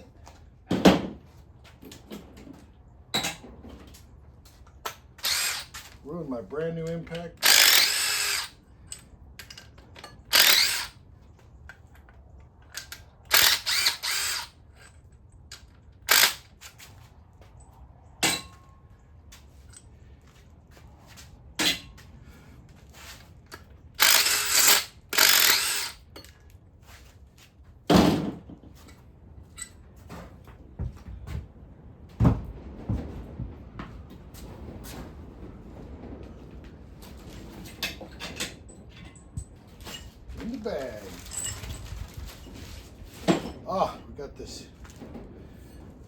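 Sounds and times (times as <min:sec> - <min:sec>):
impact wrench bursts: 0:05.2 - 0:05.9, 0:07.0 - 0:09.6, 0:10.2 - 0:11.0, 0:12.8 - 0:14.6, 0:16.0 - 0:16.6, 0:24.0 - 0:26.3.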